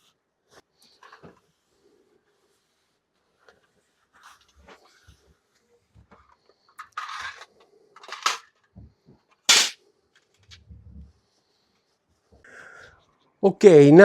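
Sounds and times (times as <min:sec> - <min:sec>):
sharp metal clanks: 0:09.5 - 0:09.8.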